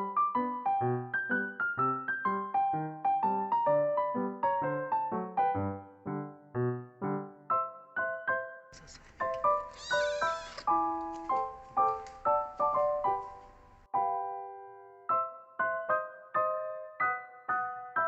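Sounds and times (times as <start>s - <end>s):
gentle piano music: 0.0s - 18.0s
kitten mewing: 8.8s - 10.8s.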